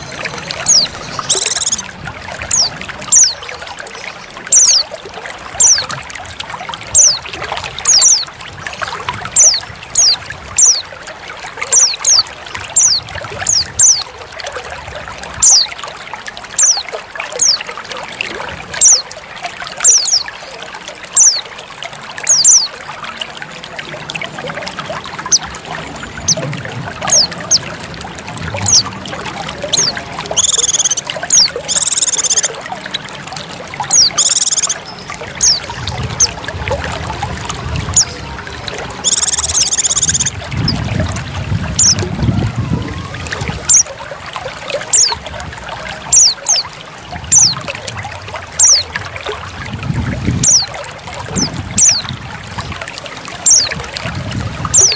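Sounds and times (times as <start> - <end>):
bird calling high notes: 0.0 - 3.4, 29.6 - 32.6, 33.9 - 36.4, 37.9 - 40.4
buzzy bird calls: 0.0 - 3.5, 4.5 - 4.9, 29.6 - 32.6, 33.9 - 36.4, 37.9 - 40.4
trickling water: 0.0 - 54.9.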